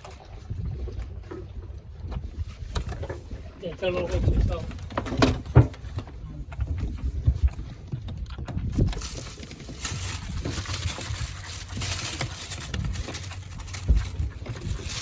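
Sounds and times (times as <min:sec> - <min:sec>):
low rumble of wind and motion: 0:00.0 - 0:15.0
knocks on boat: 0:04.9 - 0:06.1.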